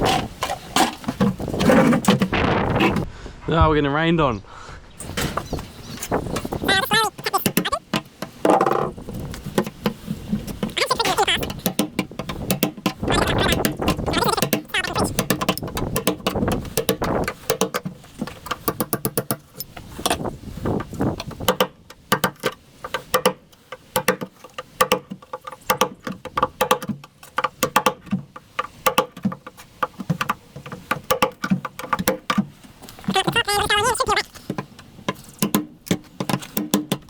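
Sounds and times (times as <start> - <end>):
sharp metal knocks: 11.4 - 20.2, 21.3 - 30.3.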